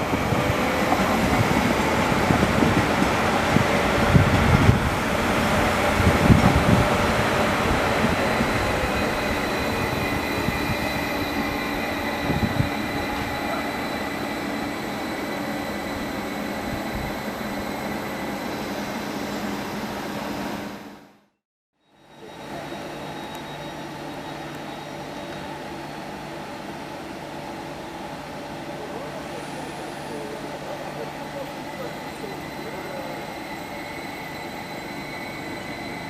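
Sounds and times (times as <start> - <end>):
train rumble with high wheel tones: 0.0 - 21.2, 21.8 - 36.0.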